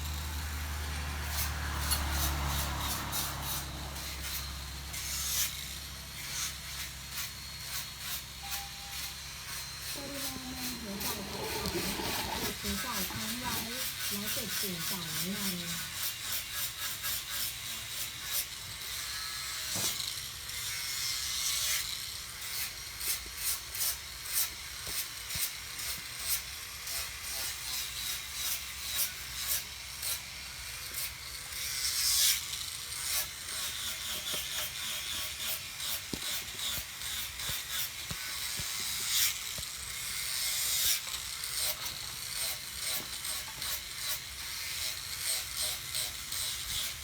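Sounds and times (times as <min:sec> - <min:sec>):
hand tool rasping wood: 0:00.0 - 0:18.5, 0:32.2 - 0:47.0.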